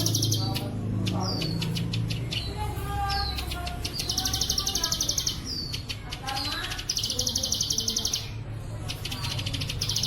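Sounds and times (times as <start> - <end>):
bird song rapid high notes: 0.0 - 10.0.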